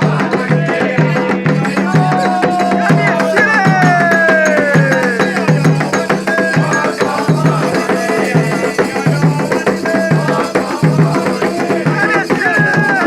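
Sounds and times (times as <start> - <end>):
hand drums playing rhythm: 0.0 - 13.0
rattle shakes: 4.8 - 13.0.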